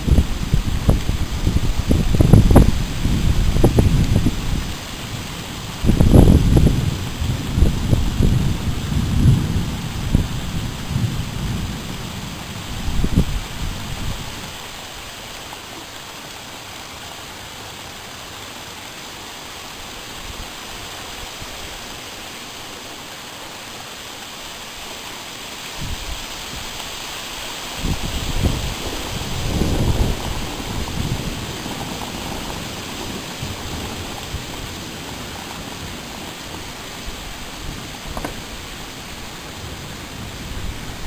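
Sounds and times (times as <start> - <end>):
thunder rumbling: 0.0 - 14.7, 27.8 - 41.0
steady rain: 0.0 - 41.0.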